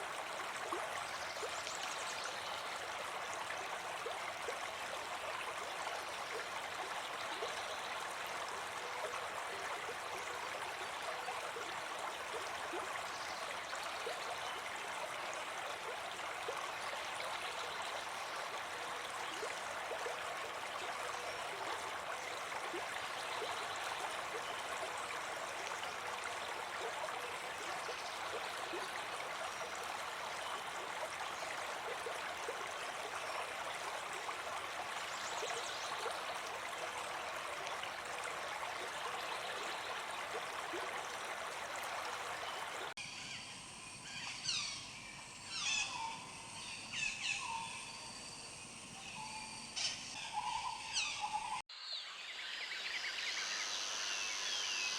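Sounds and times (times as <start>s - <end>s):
running water: 0.0s - 43.0s.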